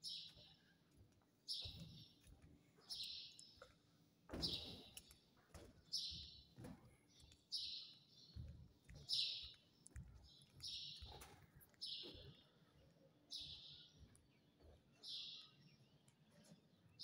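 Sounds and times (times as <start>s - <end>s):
footsteps on concrete floor: 0.0s - 12.8s
bird chirping: 7.1s - 17.0s.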